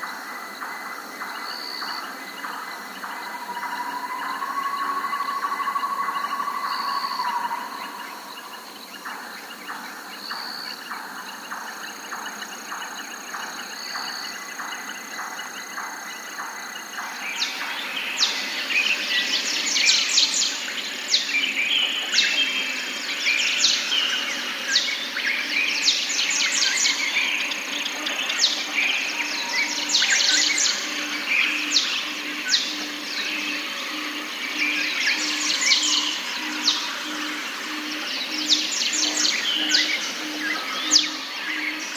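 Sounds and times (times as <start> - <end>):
birds chirping and singing: 1.1 - 41.9
thin steady high tone: 3.0 - 8.8.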